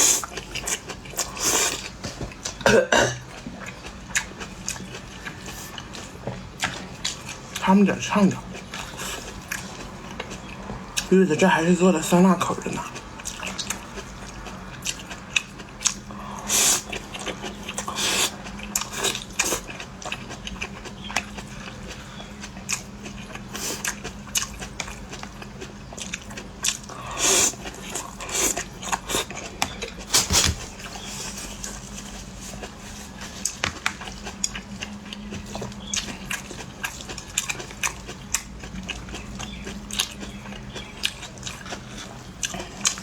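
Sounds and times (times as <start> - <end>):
person chewing with mouth smacks: 12.8 - 43.0.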